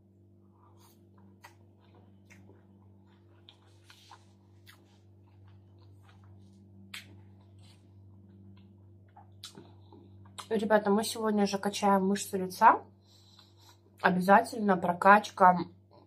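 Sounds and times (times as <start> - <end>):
low hum: 0.0 - 16.0
chewing salad: 0.5 - 10.5
wet mouth clicks and smacks: 6.9 - 7.2, 8.6 - 10.5.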